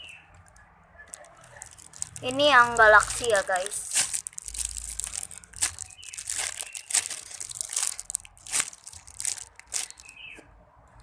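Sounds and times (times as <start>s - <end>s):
foam toy being squeezed: 3.5s - 10.2s.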